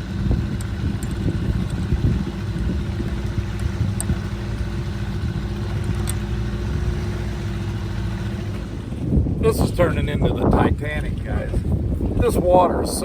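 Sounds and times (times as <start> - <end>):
boat motor humming: 0.0 - 13.0
rough water: 0.0 - 13.0
wind rumble: 0.0 - 13.0.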